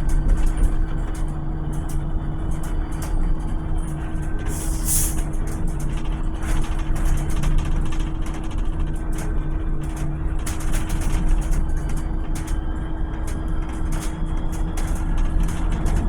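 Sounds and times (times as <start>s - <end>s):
electric bus humming: 0.0s - 16.0s
air release hiss: 4.6s - 5.2s.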